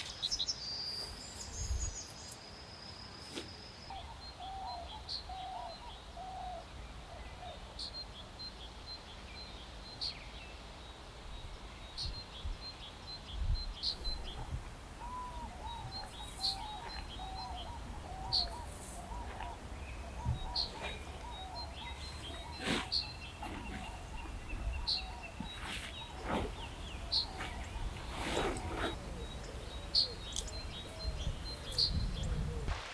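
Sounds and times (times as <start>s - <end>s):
birds warbling: 13.6s - 32.7s.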